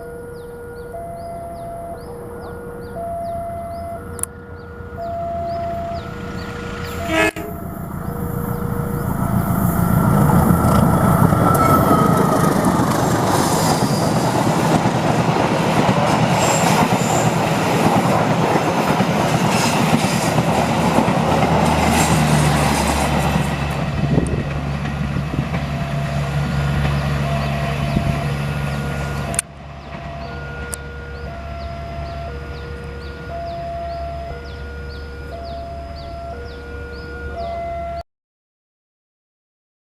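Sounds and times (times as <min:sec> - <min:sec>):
crossing alarm two alternating tones: 0:00.0 - 0:12.9, 0:30.1 - 0:38.0
train wheels clattering on rails: 0:10.2 - 0:28.2.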